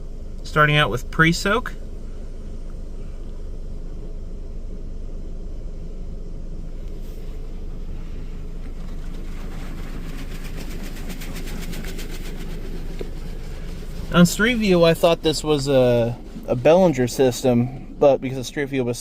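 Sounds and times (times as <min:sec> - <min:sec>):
steady low rumble: 0:00.0 - 0:19.0
car wash spray hissing: 0:06.8 - 0:18.8.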